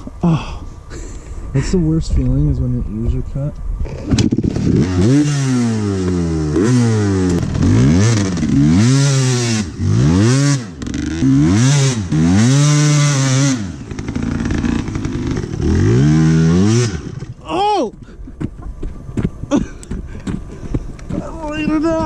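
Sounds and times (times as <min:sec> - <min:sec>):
two-stroke motorcycle engine revving: 0:03.8 - 0:17.4.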